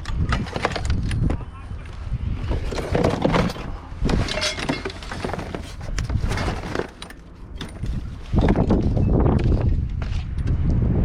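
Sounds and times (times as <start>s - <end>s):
low rumbling noise: 0.0s - 11.0s
scrap items clattering: 0.1s - 1.3s, 2.3s - 8.9s.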